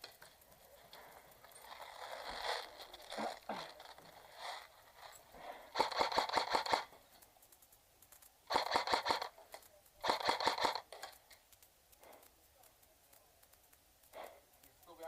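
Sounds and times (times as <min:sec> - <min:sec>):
airsoft gun firing bursts: 0:05.6 - 0:07.0, 0:08.4 - 0:09.4, 0:10.0 - 0:11.1.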